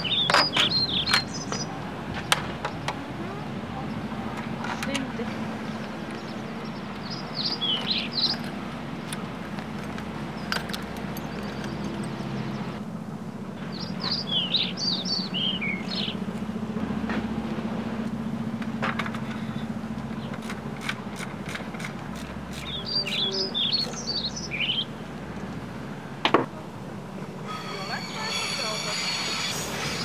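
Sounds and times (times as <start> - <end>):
songbird chirping: 0.0 - 16.6, 22.5 - 26.2.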